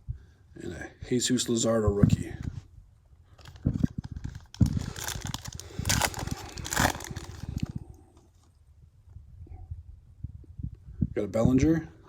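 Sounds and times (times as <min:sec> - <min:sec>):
wrapper rustling and crinkling: 0:03.3 - 0:07.9
loud wrapper crackles: 0:03.4 - 0:08.0.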